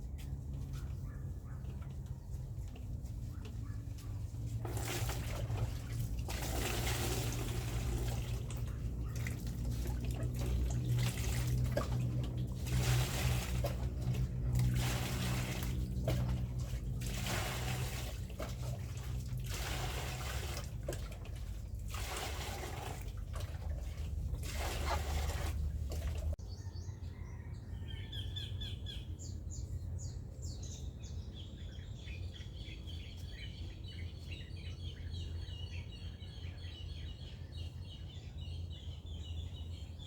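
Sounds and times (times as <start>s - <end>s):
steady low hum: 0.0s - 26.4s
water running from a tap: 4.7s - 21.2s.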